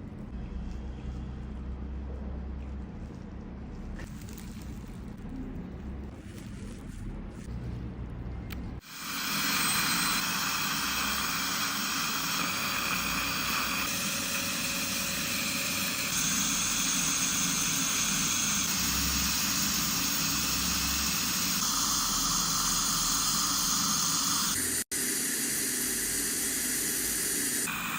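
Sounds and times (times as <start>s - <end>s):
dental drill hiss and whine: 8.8s - 27.9s.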